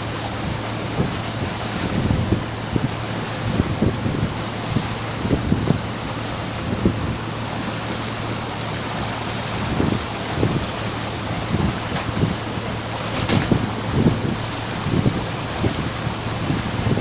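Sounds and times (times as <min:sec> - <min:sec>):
boat engine humming: 0:00.0 - 0:17.0
rush of air and water: 0:00.0 - 0:17.0
wind buffeting microphone: 0:00.0 - 0:17.0.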